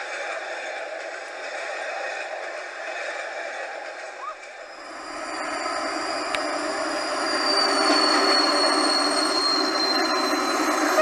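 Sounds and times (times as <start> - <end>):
train wheels rumbling on rails: 0.0 - 11.0
high wheel squeal: 4.7 - 11.0.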